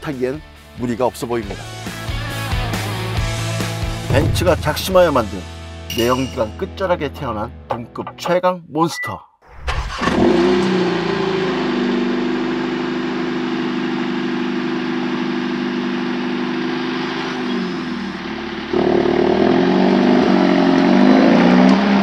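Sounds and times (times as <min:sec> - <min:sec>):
car engine revving as car moves off: 0:09.8 - 0:22.0
car engine idling: 0:11.6 - 0:18.8.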